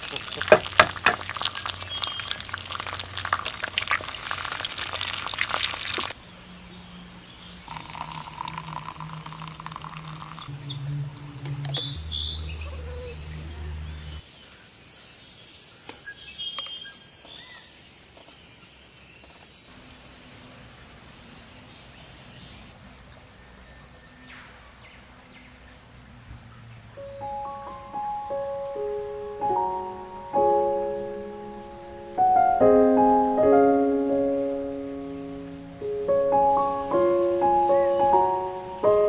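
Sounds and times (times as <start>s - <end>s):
loud crackling hiss: 0.0s - 6.2s
small birds chirping: 0.0s - 39.0s.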